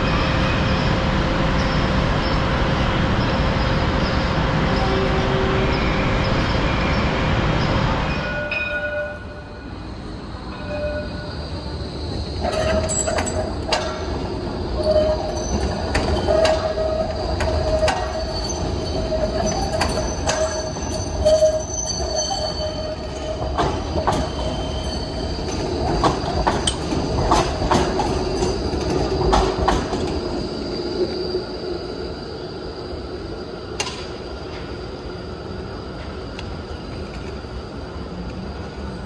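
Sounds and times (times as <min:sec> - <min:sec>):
train wheels squealing on rails: 0:00.0 - 0:39.0
wheels clicking over rail joints: 0:25.5 - 0:30.2.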